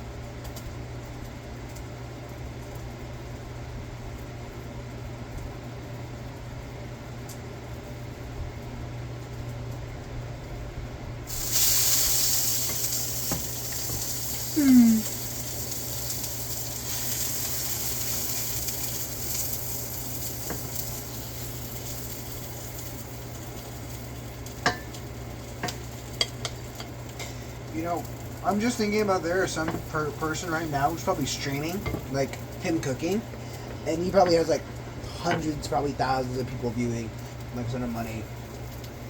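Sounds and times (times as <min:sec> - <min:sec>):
tortilla sizzling in a pan: 0:11.3 - 0:33.8.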